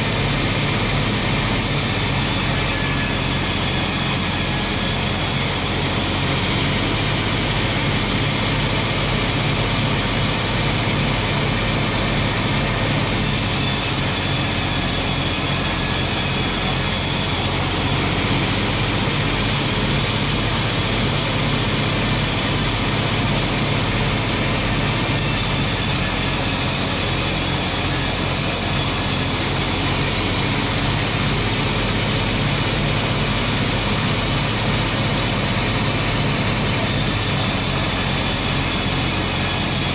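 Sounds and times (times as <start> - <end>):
machinery mechanical drone: 0.0 - 39.9.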